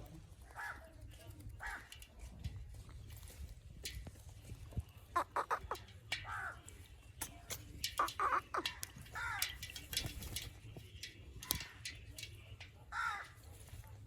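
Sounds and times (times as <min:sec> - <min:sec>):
parrot squawking: 0:05.2 - 0:06.5, 0:08.0 - 0:09.4
sharp clicks: 0:07.2 - 0:12.8.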